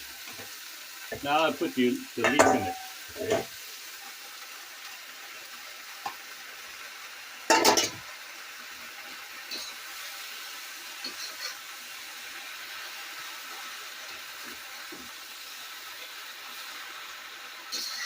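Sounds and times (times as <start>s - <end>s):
stir-frying sizzle in a wok: 0.0s - 18.0s
metal spatula clattering on wok: 2.3s - 3.4s.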